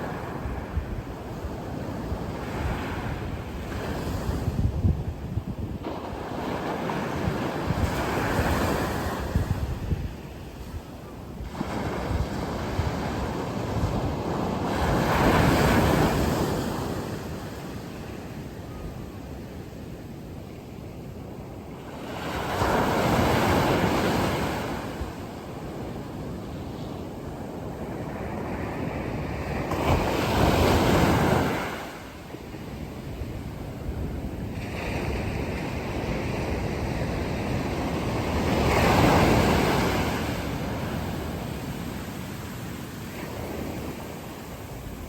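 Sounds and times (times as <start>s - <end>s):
sea waves breaking on shore: 27.2s - 33.4s, 34.5s - 45.0s.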